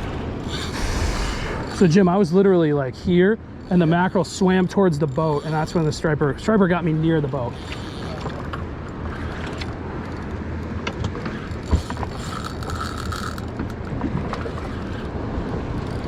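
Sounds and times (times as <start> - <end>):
water around hull: 0.0 - 16.0
boat engine running: 3.2 - 16.0.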